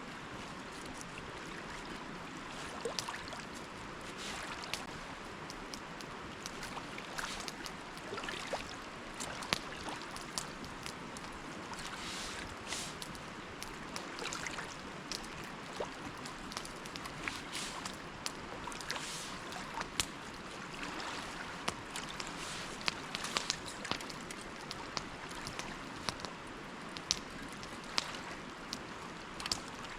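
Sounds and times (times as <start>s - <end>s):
sea water washing around rock: 2.4s - 26.4s
small sharp ticks and taps: 4.6s - 8.1s, 9.2s - 11.4s, 15.0s - 17.2s, 21.6s - 26.4s, 27.0s - 29.8s.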